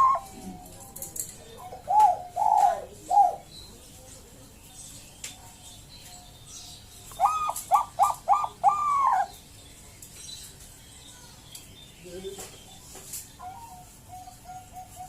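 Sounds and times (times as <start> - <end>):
dove cooing: 0.0 - 1.0, 1.6 - 3.5, 7.1 - 9.4, 13.4 - 15.0.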